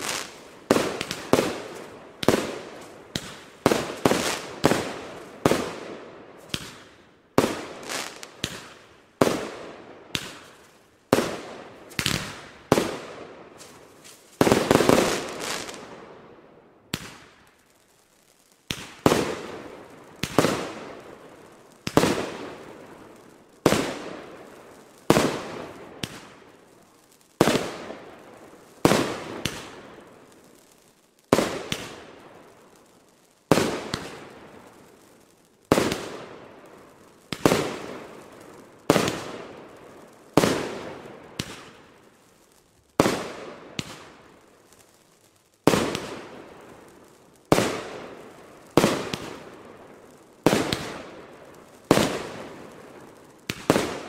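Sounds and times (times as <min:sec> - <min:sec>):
firework bangs: 0:00.0 - 0:16.0, 0:27.4 - 0:30.2, 0:35.7 - 0:41.9, 0:45.6 - 0:54.0.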